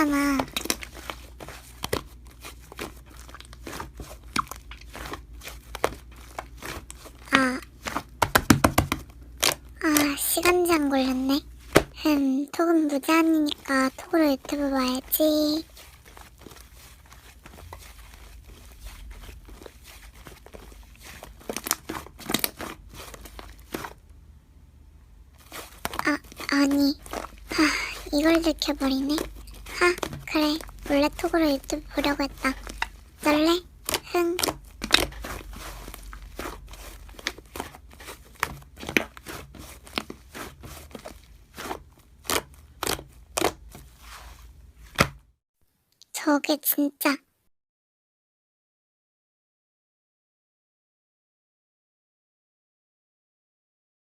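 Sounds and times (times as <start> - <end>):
slime crackling and popping: 0.0 - 12.2, 13.0 - 24.0, 25.4 - 44.3.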